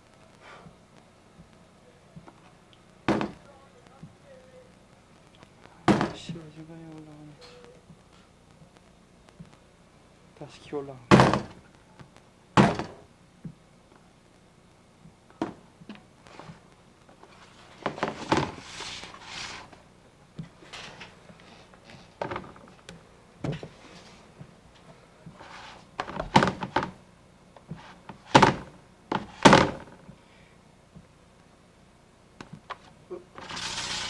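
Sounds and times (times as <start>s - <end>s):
thumps and knocks: 3.1s - 3.4s, 5.9s - 6.3s
rustling: 16.1s - 22.9s.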